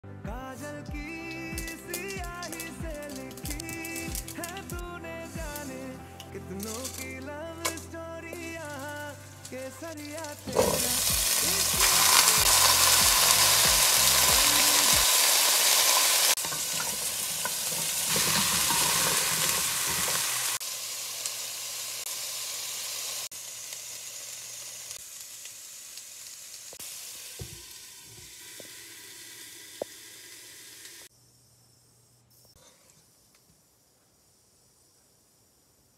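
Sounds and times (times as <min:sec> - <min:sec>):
vegetables sizzling in hot oil: 0:08.3 - 0:31.1.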